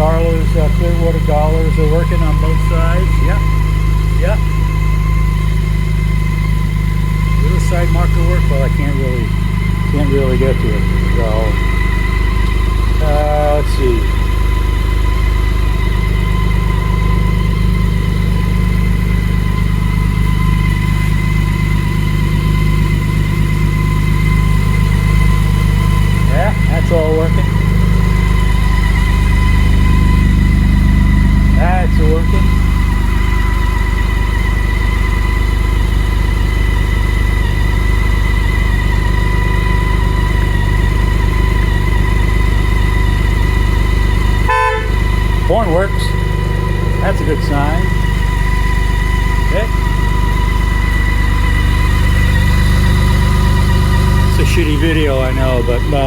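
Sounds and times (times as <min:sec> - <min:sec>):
motorcycle engine idling: 0:00.0 - 0:56.0
thin high whine: 0:00.0 - 0:56.0.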